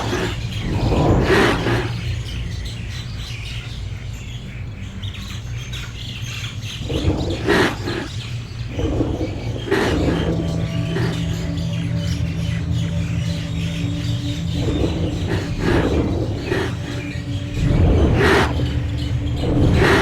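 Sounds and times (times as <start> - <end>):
birds calling: 0.0 - 20.0
low steady hum: 6.8 - 20.0.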